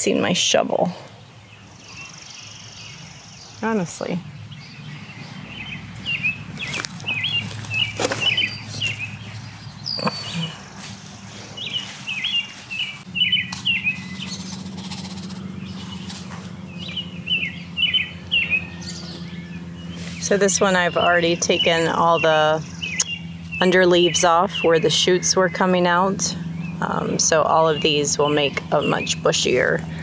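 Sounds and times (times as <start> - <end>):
low steady hum: 0.0 - 30.0
songbird chirping: 0.0 - 30.0
hands working soil: 6.5 - 16.6.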